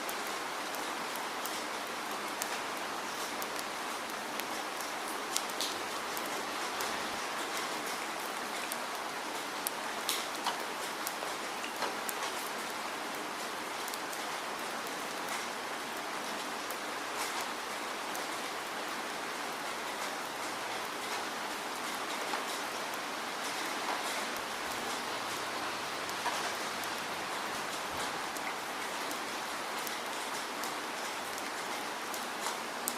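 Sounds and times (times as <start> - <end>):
raindrops ticking: 0.1 - 15.6, 19.8 - 32.9
rain hissing: 19.5 - 32.9.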